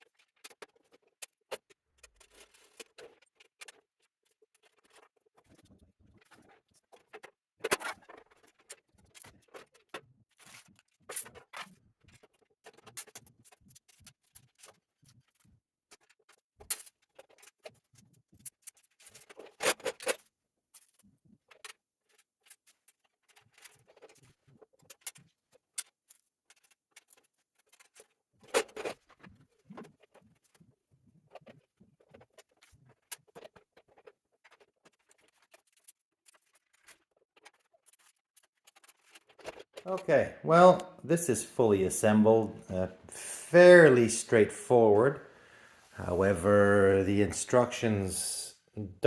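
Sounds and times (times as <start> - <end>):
metal parts clicking and clattering: 33.4 - 39.7.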